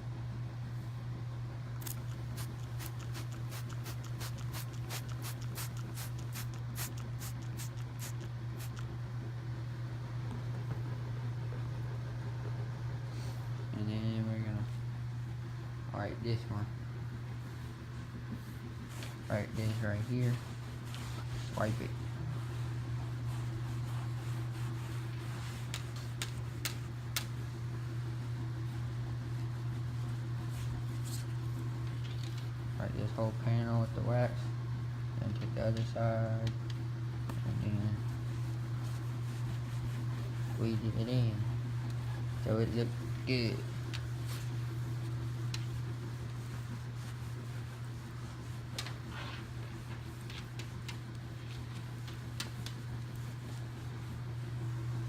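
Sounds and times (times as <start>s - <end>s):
steady low hum: 0.0s - 55.0s
spray bottle spritzes: 1.8s - 8.8s
towel rubbing car paintwork: 1.8s - 8.8s, 18.4s - 27.1s, 38.1s - 54.9s.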